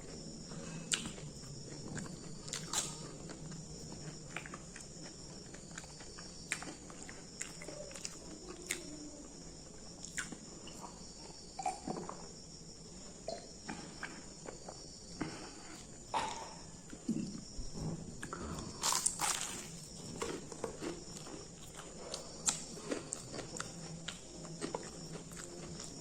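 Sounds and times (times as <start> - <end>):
chewing crunchy food: 0.0 - 12.3, 18.2 - 26.0
crickets trilling: 0.0 - 26.0.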